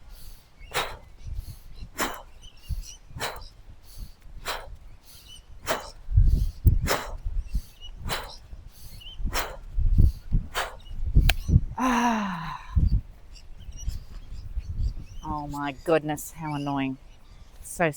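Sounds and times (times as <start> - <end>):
wind buffeting microphone: 0.0 - 17.9
jump rope swishes: 0.7 - 11.6.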